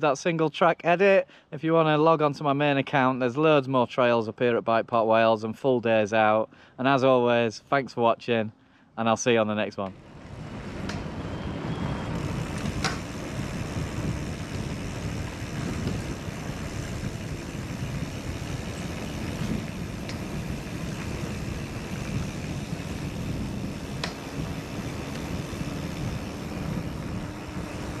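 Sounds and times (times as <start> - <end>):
rumble of wind and tyres: 9.8 - 28.0
bike clicks and knocks: 10.7 - 11.1, 12.2 - 28.0.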